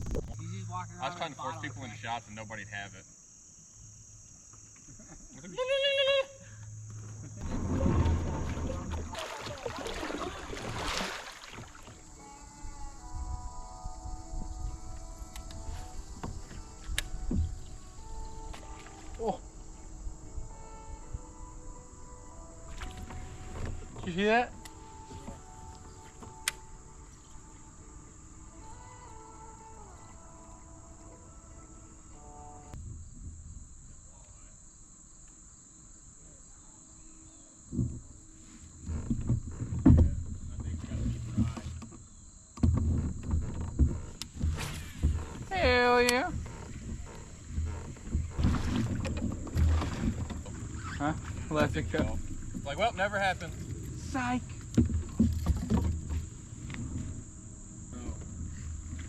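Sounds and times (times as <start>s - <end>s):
crickets chirping: 0.0s - 59.0s
low rumble: 7.3s - 9.1s
water splashing around kayak: 7.4s - 12.5s, 22.5s - 28.8s, 38.8s - 59.0s.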